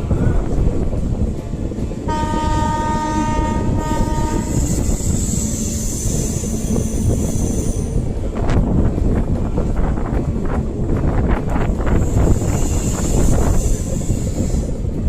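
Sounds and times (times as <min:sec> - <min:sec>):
train rumbling past: 0:00.0 - 0:15.0
train horn: 0:02.1 - 0:07.9
high-pitched squeal: 0:03.1 - 0:08.1.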